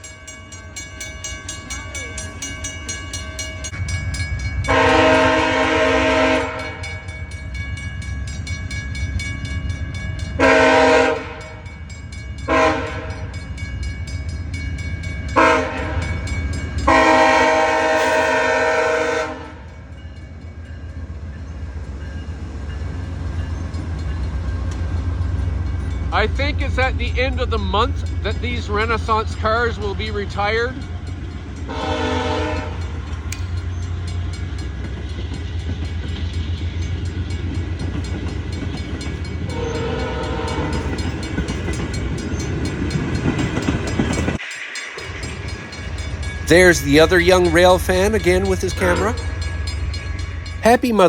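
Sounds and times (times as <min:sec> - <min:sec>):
train rumbling on rails: 0:00.0 - 0:51.0
locomotive air horn blasts: 0:04.7 - 0:07.0, 0:10.4 - 0:11.6, 0:12.5 - 0:13.3, 0:15.4 - 0:16.2, 0:16.9 - 0:19.7, 0:31.7 - 0:32.9, 0:39.5 - 0:41.0.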